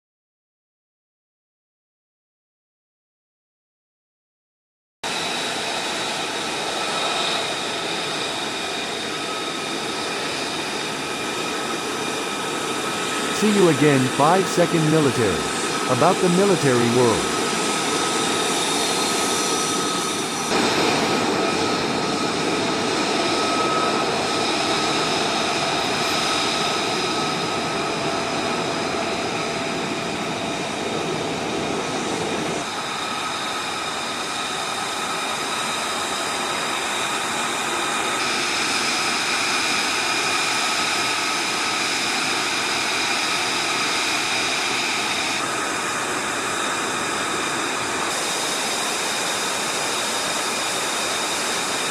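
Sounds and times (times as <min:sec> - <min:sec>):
jet engine whining: 0:05.2 - 0:14.7, 0:15.3 - 0:39.6.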